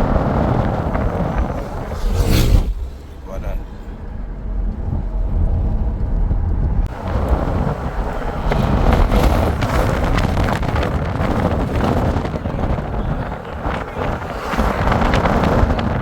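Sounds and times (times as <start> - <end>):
vehicle rumble: 0.0 - 16.0
wind buffeting microphone: 0.0 - 16.0.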